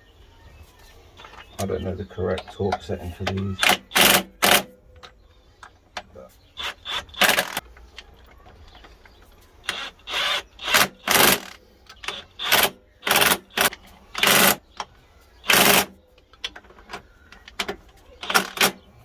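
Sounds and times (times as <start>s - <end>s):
power tool bursts: 3.6s - 4.7s, 6.6s - 7.6s, 9.6s - 14.6s.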